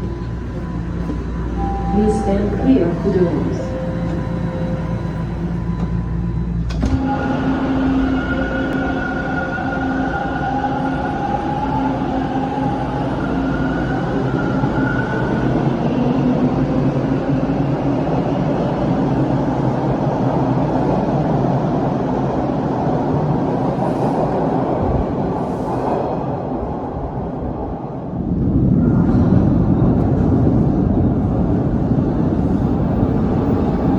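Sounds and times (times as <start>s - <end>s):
train whining tones: 0.0s - 17.5s
subway wheels rumbling on rail: 0.0s - 33.9s.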